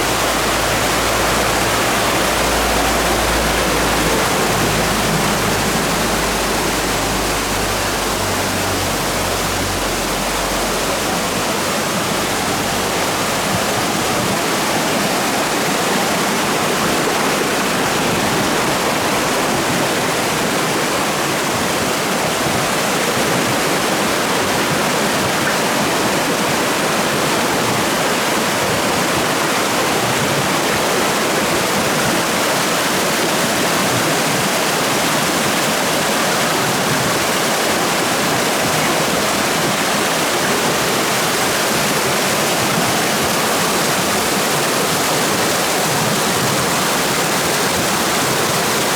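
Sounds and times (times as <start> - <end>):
water rushing over rocks: 0.0 - 48.9.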